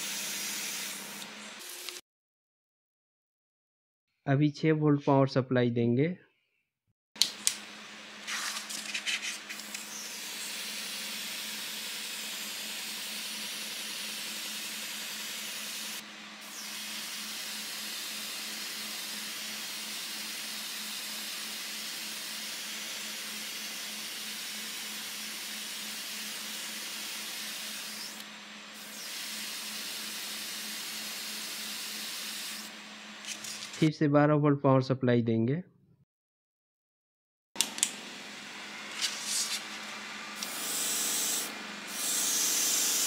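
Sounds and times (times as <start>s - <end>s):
compressor motor humming: 0.0s - 2.0s, 9.4s - 33.9s, 37.6s - 43.0s
airbrush air hiss: 9.9s - 28.2s, 40.6s - 43.0s.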